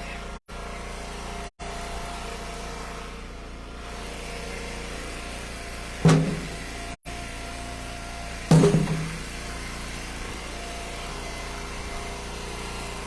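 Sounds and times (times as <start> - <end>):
loud knock of wood: 6.1 - 6.8, 8.5 - 9.4.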